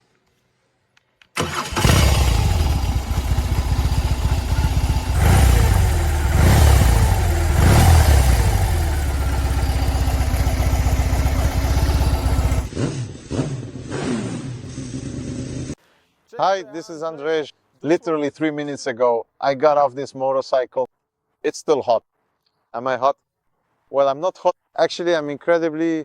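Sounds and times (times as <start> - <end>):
motorcycle engine throttle blips: 1.4 - 12.7.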